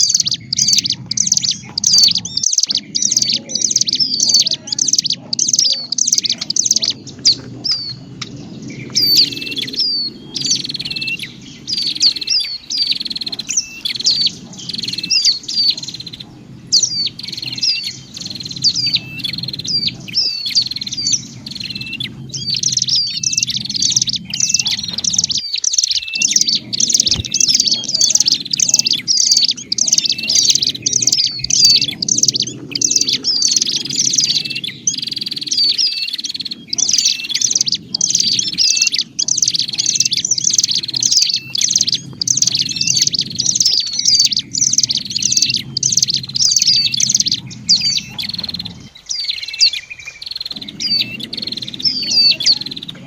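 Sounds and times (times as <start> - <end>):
birds chirping rapidly: 0.0 - 53.0
steady low hum: 0.0 - 53.0.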